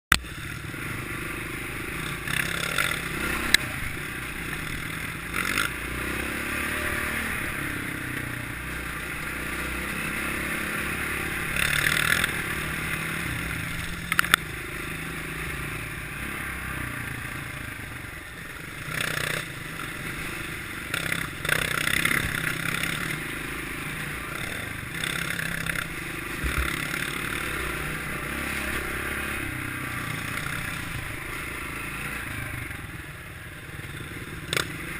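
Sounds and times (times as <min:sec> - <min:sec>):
clatter and scraping from trail: 0:00.1 - 0:15.2, 0:18.7 - 0:32.5
motorcycle engine running: 0:00.1 - 0:34.9
sharp clicks: 0:14.0 - 0:14.4.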